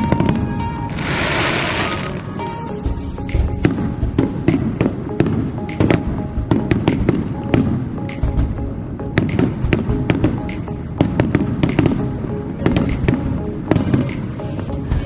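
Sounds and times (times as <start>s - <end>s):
fireworks cracks and bangs: 0.0s - 8.6s, 9.2s - 15.0s
music: 0.0s - 15.0s.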